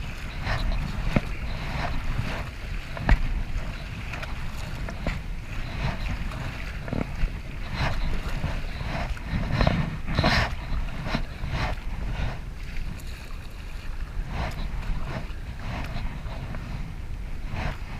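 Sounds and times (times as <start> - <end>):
paddle splashing water: 0.0 - 17.9
wind rumble on microphone: 0.0 - 17.9.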